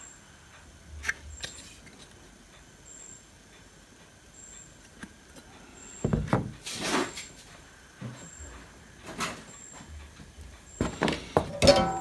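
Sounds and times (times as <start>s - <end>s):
dull knocks on workbench: 6.0s - 6.6s.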